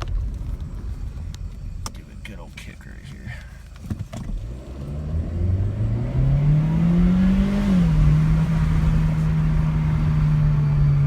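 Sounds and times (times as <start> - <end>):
car engine accelerating hard: 3.9 - 11.0.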